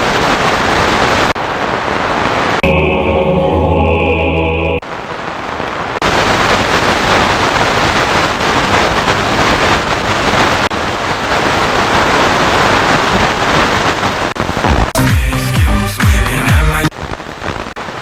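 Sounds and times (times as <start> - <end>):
radio static hiss: 13.7 - 18.0.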